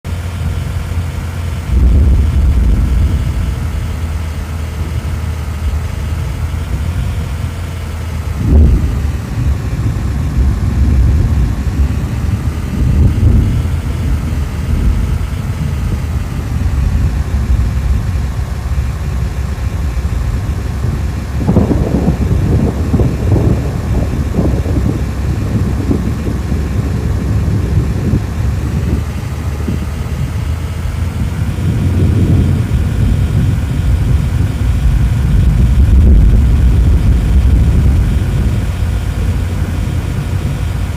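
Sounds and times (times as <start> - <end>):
choppy wind gusts: 0.0 - 40.9
wind and vehicle rumble: 0.0 - 40.9
faint whine: 0.1 - 40.9.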